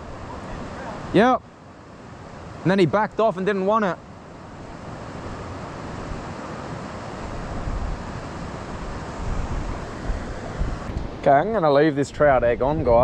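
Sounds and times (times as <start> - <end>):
flowing creek water: 0.0 - 12.3
wind buffeting microphone: 4.2 - 13.0.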